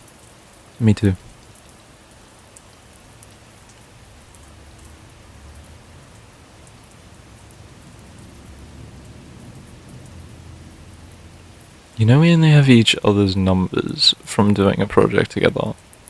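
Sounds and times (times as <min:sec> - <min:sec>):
raindrop ticks: 0:00.0 - 0:16.0
steady rainfall hiss: 0:00.0 - 0:16.0
low rumble: 0:04.1 - 0:12.0.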